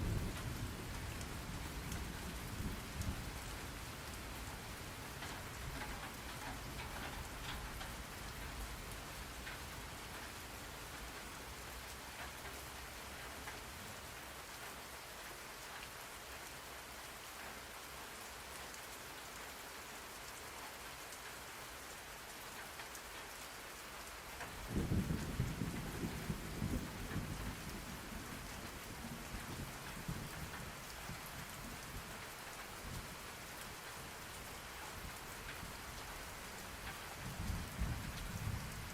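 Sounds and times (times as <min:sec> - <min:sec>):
rain falling: 0:00.0 - 0:38.9
thunder rumbling: 0:24.7 - 0:31.7.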